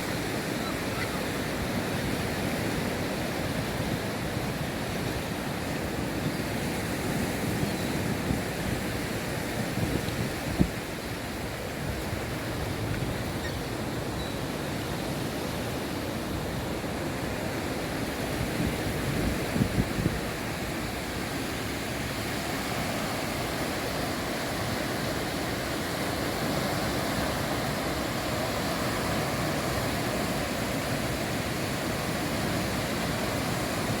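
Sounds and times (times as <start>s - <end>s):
surf washing on shore: 0.0s - 34.0s
wind buffeting microphone: 5.9s - 14.1s, 18.3s - 20.8s.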